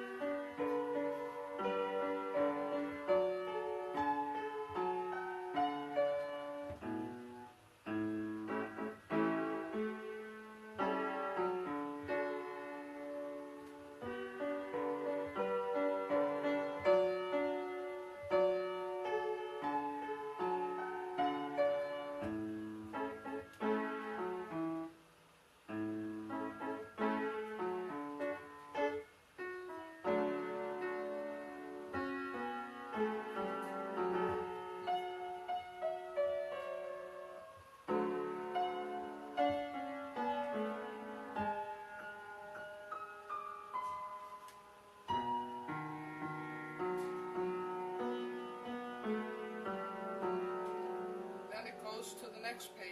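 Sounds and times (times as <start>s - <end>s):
out of tune piano: 0.0s - 52.9s
person speaking: 51.4s - 52.9s.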